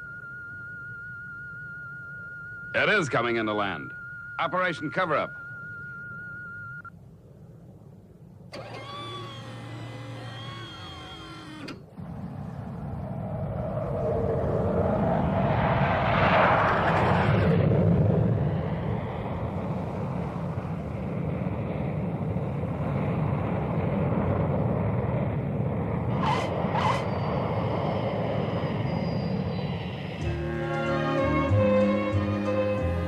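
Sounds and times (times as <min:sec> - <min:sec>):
jet aircraft engines: 0:07.2 - 0:33.0.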